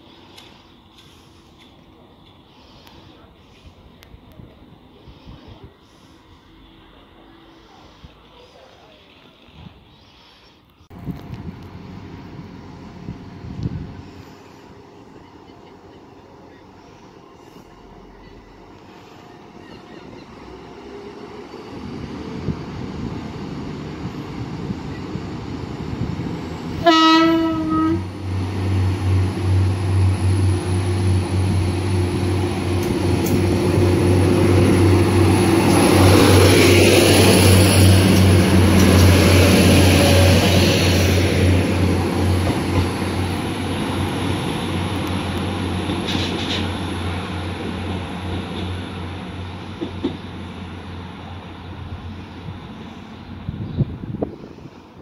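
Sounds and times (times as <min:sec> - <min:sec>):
wheel and rail noise: 0:00.0 - 0:55.0
train horn blast: 0:26.8 - 0:28.1.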